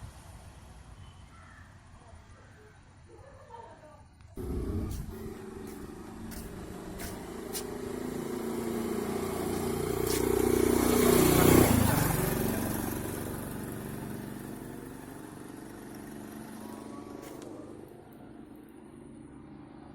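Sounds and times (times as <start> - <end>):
vehicle driving past: 4.4 - 19.9.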